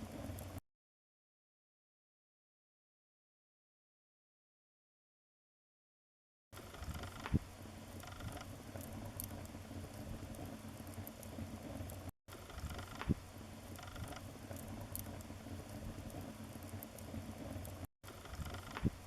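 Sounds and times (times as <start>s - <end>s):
wood fire crackling: 0.0s - 0.6s, 6.6s - 19.0s.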